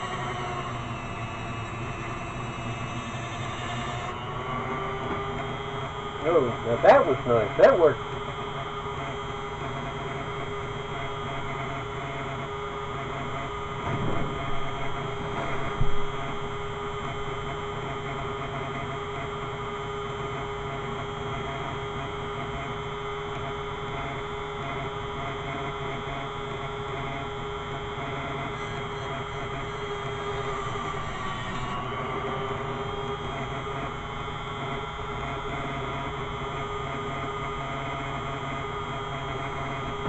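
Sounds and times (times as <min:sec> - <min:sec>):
power tool motor humming: 0:00.0 - 0:16.7, 0:25.7 - 0:38.4.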